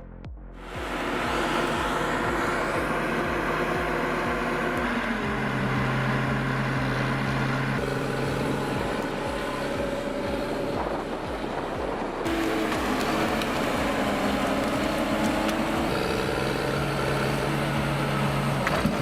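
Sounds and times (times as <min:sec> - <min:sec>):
heavy machinery engine running: 0:00.6 - 0:19.0.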